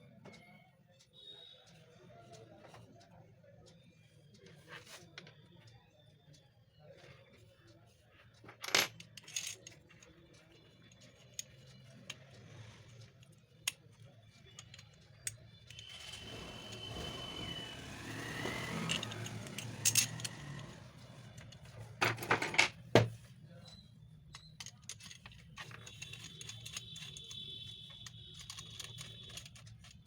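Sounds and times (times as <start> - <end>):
metal motor parts clinking: 8.5 - 22.9, 23.8 - 30.0.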